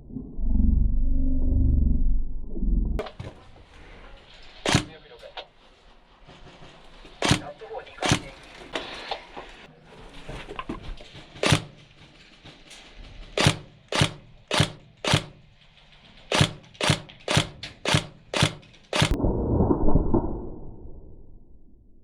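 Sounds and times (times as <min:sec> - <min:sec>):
muffled low rumble: 0:00.0 - 0:03.0
airsoft gun shots: 0:04.6 - 0:05.0, 0:07.2 - 0:08.4, 0:11.4 - 0:11.8, 0:13.4 - 0:15.5, 0:16.3 - 0:19.2.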